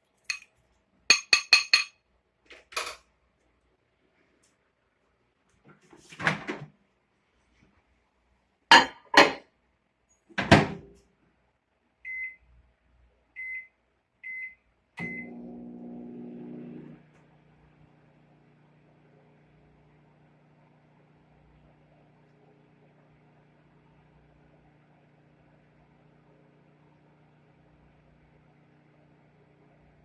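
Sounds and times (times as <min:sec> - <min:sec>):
microwave oven humming: 0:14.3 - 0:30.0.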